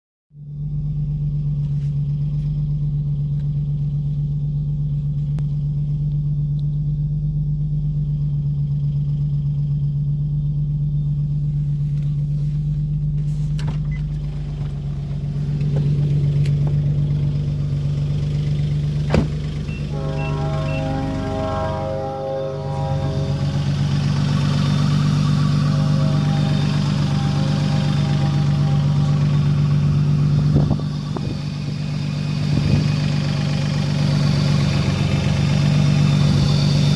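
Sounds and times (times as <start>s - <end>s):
car engine idling: 0.3s - 36.9s
engine knocking: 14.1s - 21.0s, 23.3s - 36.9s.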